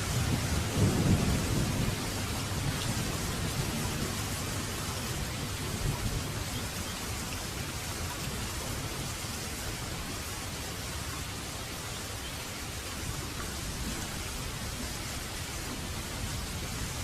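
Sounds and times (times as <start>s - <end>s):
low thunder rumble: 0.0s - 9.1s
steady rain falling: 0.0s - 17.0s.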